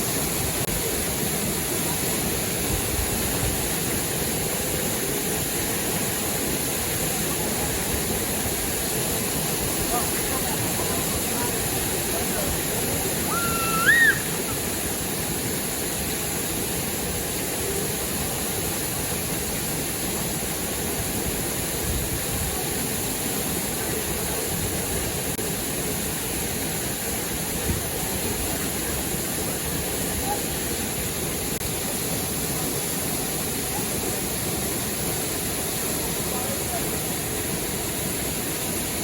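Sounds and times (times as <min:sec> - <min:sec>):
water rushing over waterfall: 0:00.0 - 0:39.0
short rising whistle: 0:13.3 - 0:14.4.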